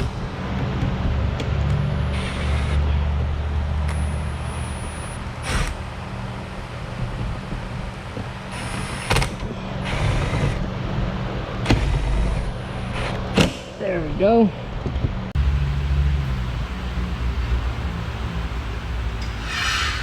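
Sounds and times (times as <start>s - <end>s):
steady low hum: 15.3s - 20.0s
power driver running: 15.4s - 20.0s.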